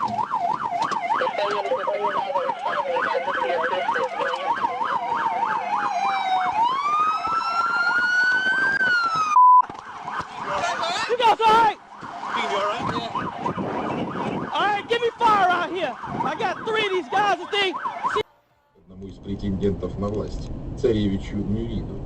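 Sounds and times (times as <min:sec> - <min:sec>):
siren yelp: 0:00.0 - 0:18.7
loud steady siren tone: 0:00.0 - 0:18.8
siren wail: 0:00.0 - 0:18.8.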